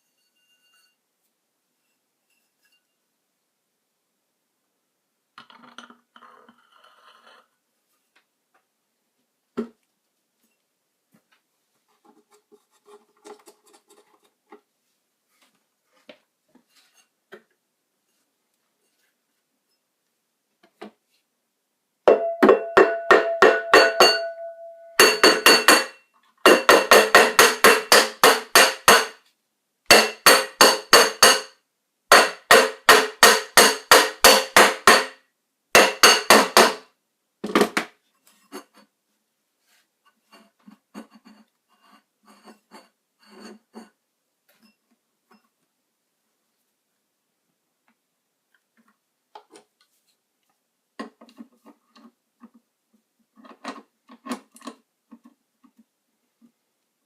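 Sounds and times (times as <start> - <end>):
metal struck rapidly ringing: 22.1 - 25.9.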